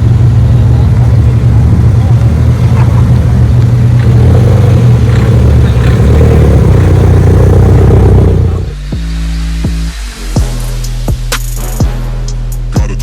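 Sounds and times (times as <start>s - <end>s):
car engine running: 0.0s - 10.0s
hip hop music with deep bass: 8.6s - 13.0s.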